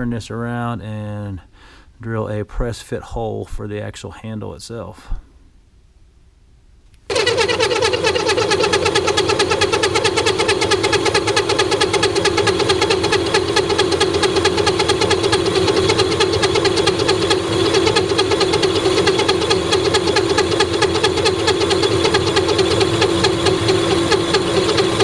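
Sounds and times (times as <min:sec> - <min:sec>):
lathe humming with pulsing: 0:07.1 - 0:25.0.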